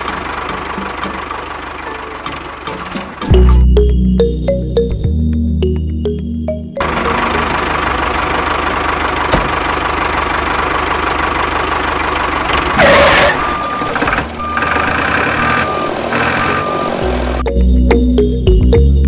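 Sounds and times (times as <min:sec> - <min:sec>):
small tractor motor running: 0:06.8 - 0:17.4
short beeps: 0:13.3 - 0:17.0.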